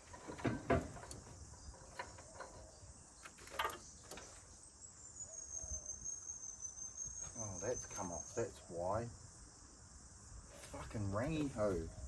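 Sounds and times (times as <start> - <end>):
metallic knocks and clunks: 0.0 - 4.4
insects chirping: 0.0 - 12.0.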